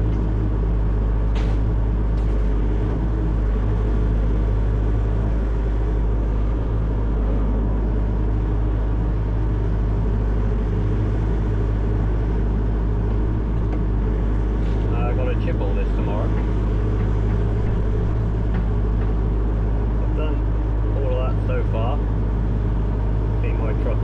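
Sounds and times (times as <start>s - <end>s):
excavator diesel engine droning: 0.0s - 24.0s.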